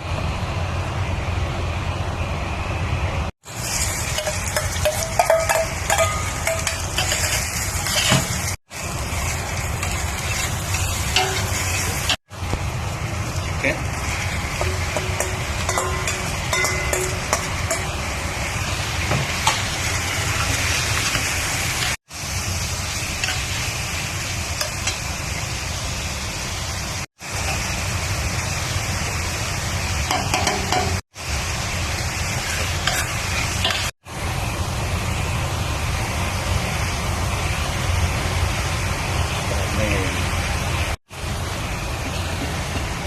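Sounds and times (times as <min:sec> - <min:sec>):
food sizzling in a hot pan: 0:03.4 - 0:43.0
stirring and scraping in a pan: 0:03.6 - 0:12.2, 0:32.2 - 0:33.9.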